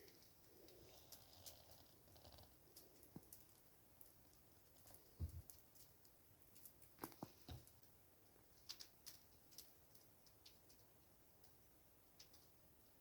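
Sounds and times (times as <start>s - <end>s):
campfire crackling and popping: 0.0s - 7.9s.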